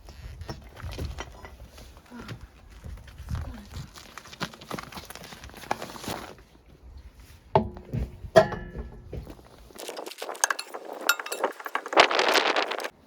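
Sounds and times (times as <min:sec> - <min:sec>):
objects knocking and clicking: 0:07.6 - 0:12.9.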